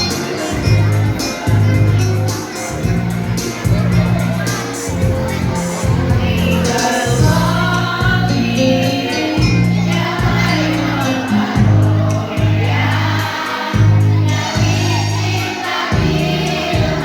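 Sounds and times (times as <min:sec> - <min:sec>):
instrumental accompaniment with bass line: 0:00.0 - 0:17.0
choir singing: 0:03.4 - 0:17.0.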